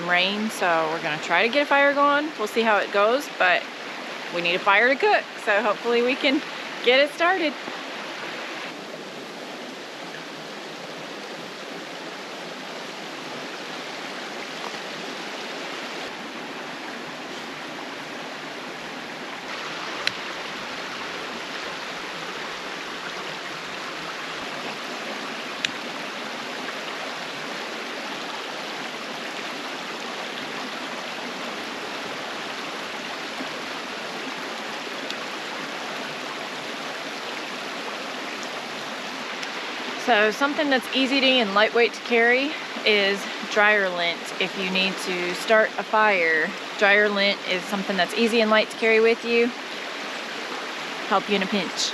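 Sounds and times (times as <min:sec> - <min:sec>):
creek rushing over rocks: 0:00.0 - 0:51.9.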